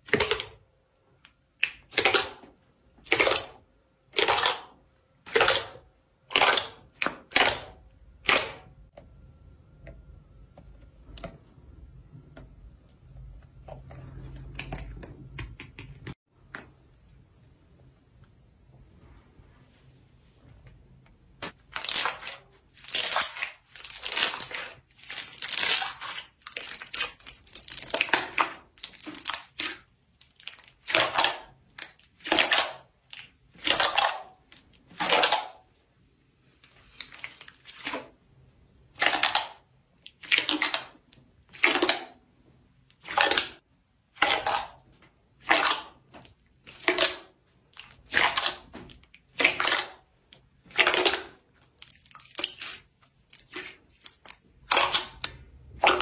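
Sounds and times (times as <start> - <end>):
slime squishing by hand: 21.2 - 35.8, 36.4 - 56.0.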